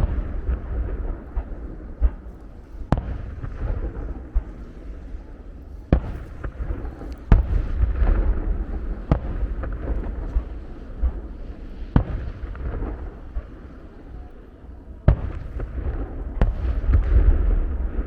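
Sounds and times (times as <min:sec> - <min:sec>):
low rumble: 0:00.0 - 0:18.0
small firework cracks: 0:05.9 - 0:14.5, 0:15.1 - 0:18.0.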